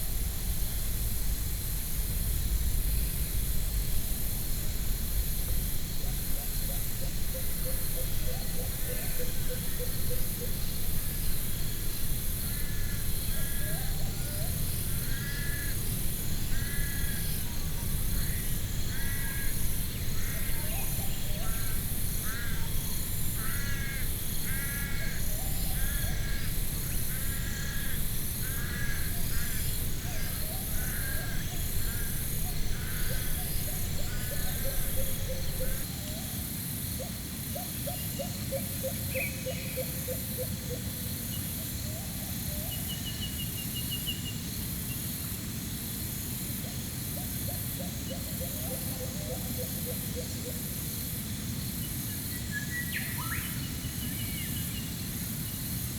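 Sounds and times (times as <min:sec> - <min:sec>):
low wind rumble: 0:00.0 - 0:35.9
trilling bird calls: 0:06.5 - 0:35.9
high pulsing chirp: 0:07.0 - 0:35.9
crows cawing: 0:12.1 - 0:35.9.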